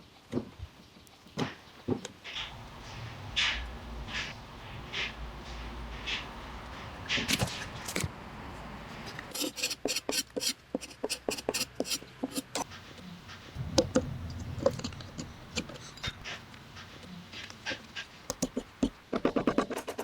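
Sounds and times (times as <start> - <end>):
hand tool scraping wood: 8.9 - 13.7.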